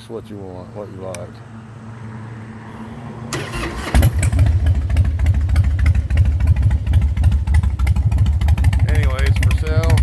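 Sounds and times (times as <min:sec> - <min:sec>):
motorcycle starter cranking: 0:03.3 - 0:10.0
motorcycle engine deep throaty idle: 0:04.1 - 0:10.0.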